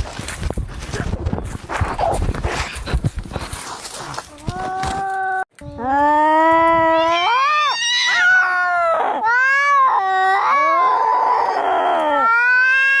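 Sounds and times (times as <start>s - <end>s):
cats yowling in a fight: 6.4s - 13.0s.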